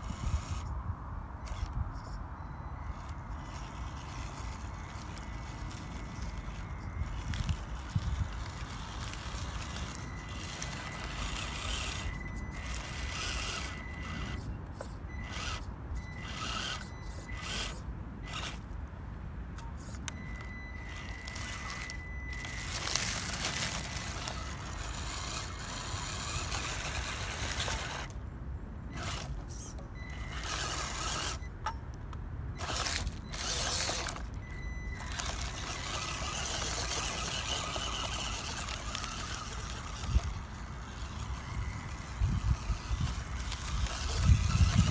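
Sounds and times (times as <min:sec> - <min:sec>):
toy truck motor whining: 0:00.0 - 0:00.8, 0:01.4 - 0:18.8, 0:19.6 - 0:28.2, 0:28.9 - 0:31.8, 0:32.5 - 0:44.9
wind on microphone: 0:41.4 - 0:44.9.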